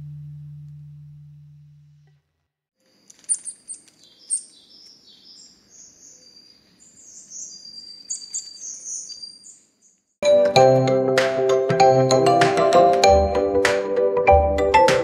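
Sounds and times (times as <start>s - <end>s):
songbirds chirping: 2.9s - 10.2s.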